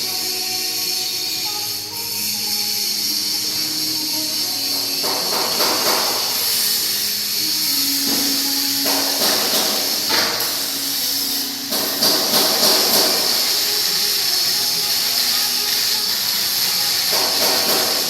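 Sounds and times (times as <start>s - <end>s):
steady high hiss: 0.0s - 18.0s
welding arc hissing and crackling: 0.0s - 18.0s.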